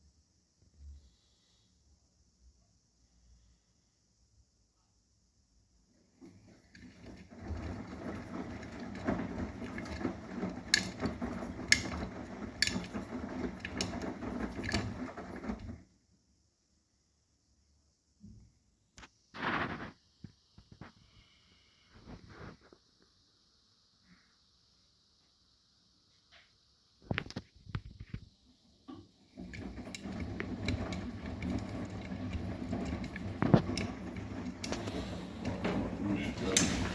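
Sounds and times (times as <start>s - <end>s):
washing machine drum churning: 6.2s - 15.9s, 28.9s - 36.9s.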